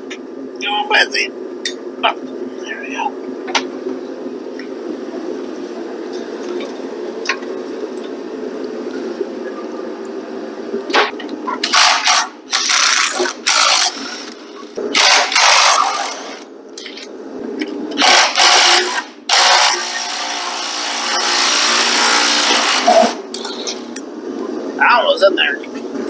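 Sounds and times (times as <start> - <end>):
power tool running: 11.6 - 16.4, 18.0 - 23.2.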